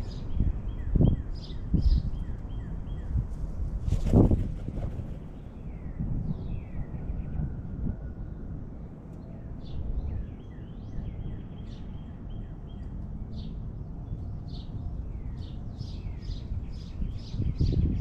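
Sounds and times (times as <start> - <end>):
small birds chirping: 9.7 - 18.0.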